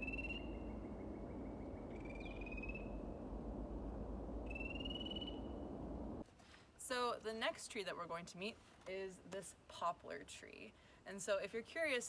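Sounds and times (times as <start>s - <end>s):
frog calling trill: 0.0s - 3.2s, 4.4s - 5.6s
low wetland hum: 0.0s - 6.2s.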